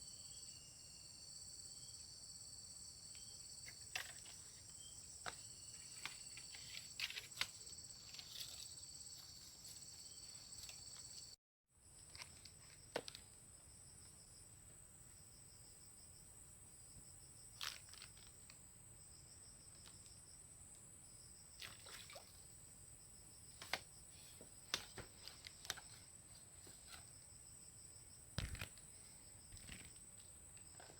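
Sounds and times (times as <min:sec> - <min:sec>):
high-pitched insect chorus: 0:00.0 - 0:11.3.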